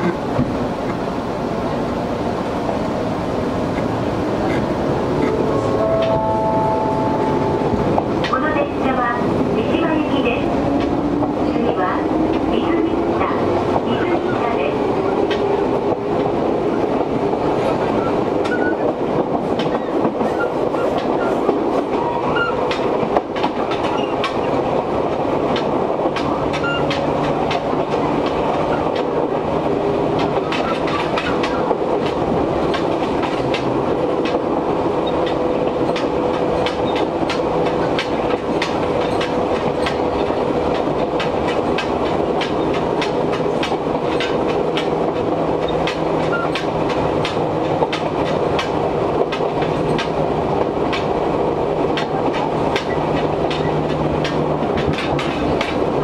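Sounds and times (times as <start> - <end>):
train interior rumble: 0.0 - 56.0
wheels clacking: 12.6 - 51.2, 51.9 - 56.0.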